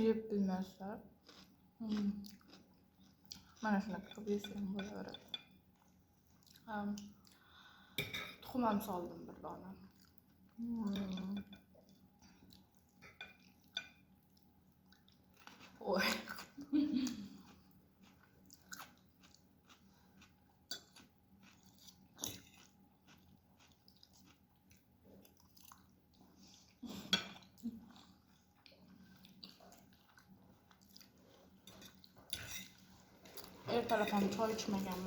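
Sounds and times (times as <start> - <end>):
chewing noodles: 9.8 - 33.7.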